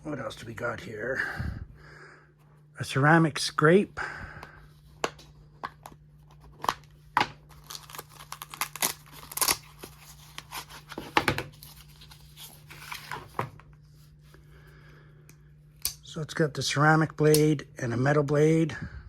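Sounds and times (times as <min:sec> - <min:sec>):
packaging tearing and crinkling: 0:06.5 - 0:13.2.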